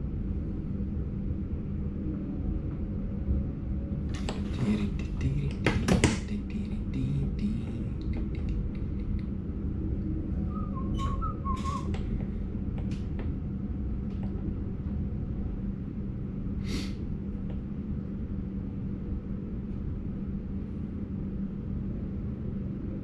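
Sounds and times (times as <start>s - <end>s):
constant hum: 0.0s - 23.0s
train low rumble: 0.0s - 23.0s
high whistle-like chirps: 10.5s - 11.9s.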